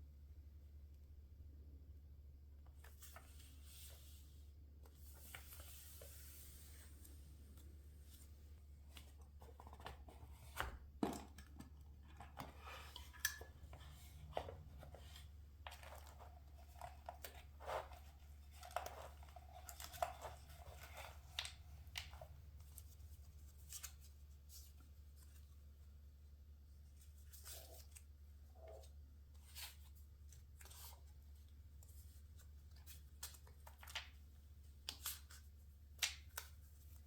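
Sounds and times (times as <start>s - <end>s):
paper rustling: 12.3s - 25.7s.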